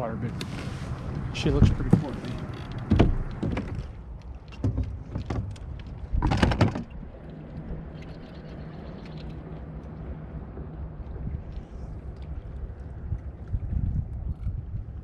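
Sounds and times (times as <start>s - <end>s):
gear rattling in plastic kayak: 0.4s - 9.7s.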